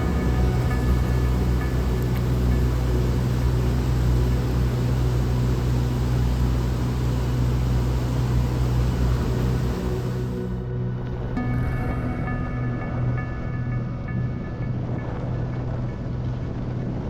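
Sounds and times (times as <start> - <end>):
vehicle rumble with hiss: 0.0 - 10.6.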